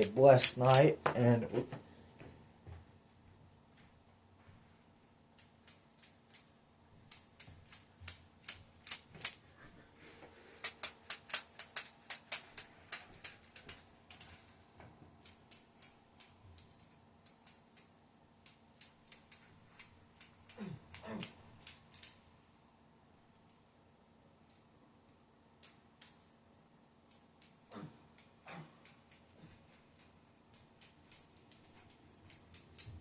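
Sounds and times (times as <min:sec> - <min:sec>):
plastic segments clicking: 0:10.6 - 0:14.5.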